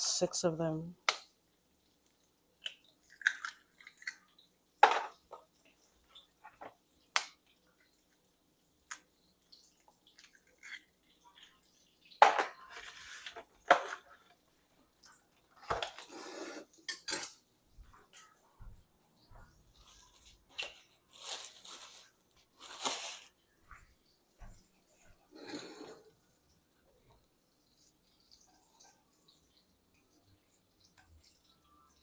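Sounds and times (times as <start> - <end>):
eggs cracking against bowl: 2.1 - 7.7
dishes and utensils clinking: 15.6 - 17.4.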